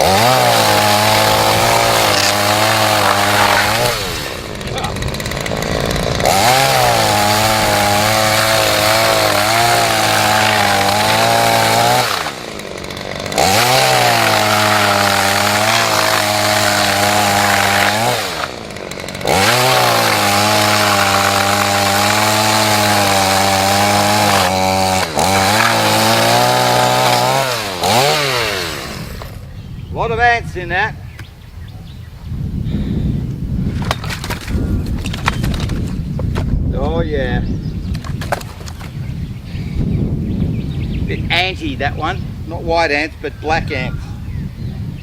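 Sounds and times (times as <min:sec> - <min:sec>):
chainsaw cutting log: 0:00.0 - 0:29.5, 0:33.8 - 0:36.2, 0:38.0 - 0:39.0.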